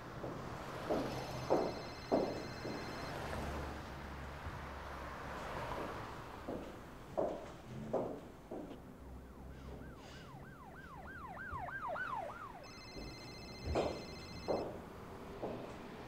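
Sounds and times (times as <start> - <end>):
soft knocks: 0.2 - 3.1, 5.8 - 8.8, 12.7 - 14.8, 15.4 - 15.9.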